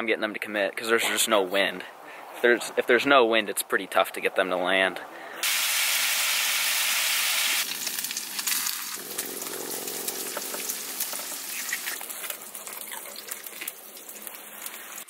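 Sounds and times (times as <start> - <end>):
bacon sizzling in a skillet: 5.4 - 15.0
eggs frying with pops: 7.6 - 15.0.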